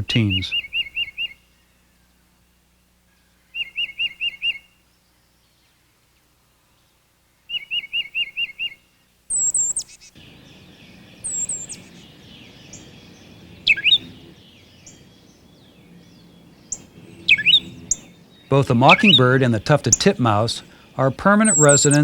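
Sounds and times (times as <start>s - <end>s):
repeated whistled bird notes: 3.5s - 4.8s, 7.5s - 10.0s, 11.2s - 20.7s, 21.4s - 22.0s
very high sweeping bird notes: 7.5s - 22.0s.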